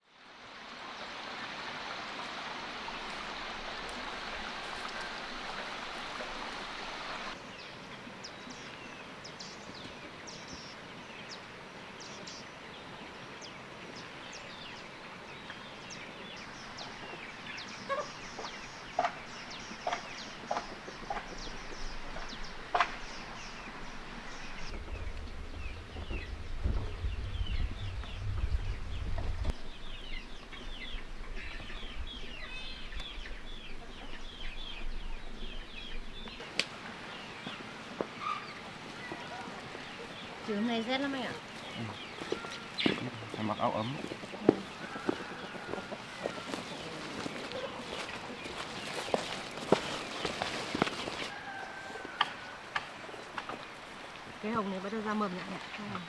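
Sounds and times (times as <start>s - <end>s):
low rumble: 23.8s - 36.2s.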